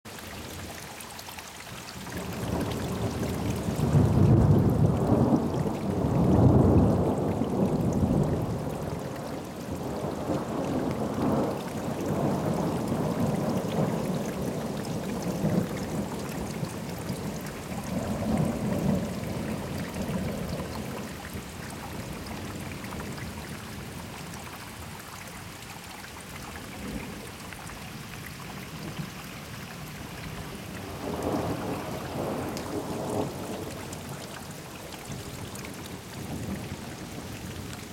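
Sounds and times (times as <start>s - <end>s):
rain hissing: 2.2s - 22.6s, 29.7s - 37.9s
thunder rumbling: 30.9s - 33.7s.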